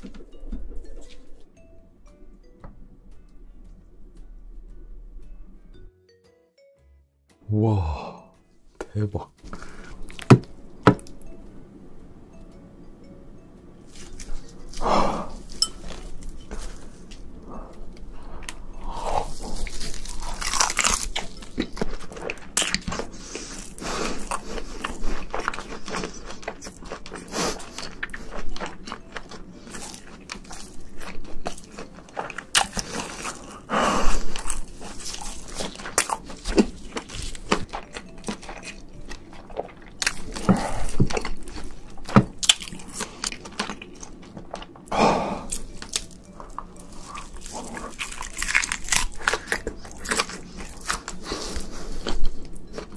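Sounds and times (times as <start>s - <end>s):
crunchy eating and chewing: 13.8s - 52.9s.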